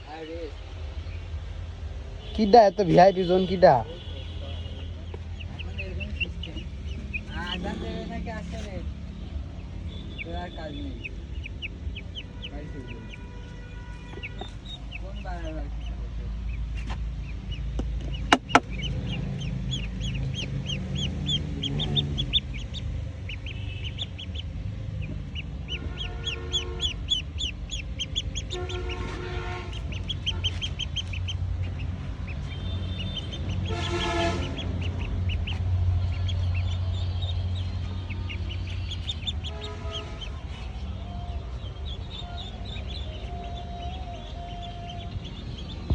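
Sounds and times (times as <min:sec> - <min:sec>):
chicks peeping: 0:05.0 - 0:45.9
larger fowl calling: 0:32.5 - 0:35.1.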